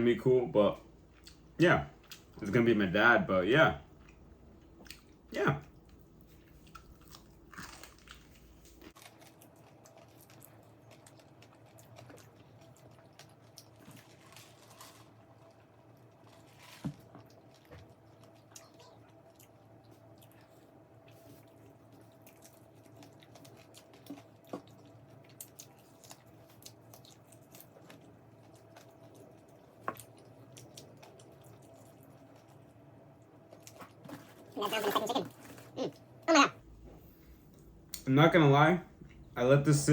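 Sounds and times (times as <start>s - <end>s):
faint steady hum: 0.0s - 39.9s
person chewing crunchy food: 5.8s - 32.8s.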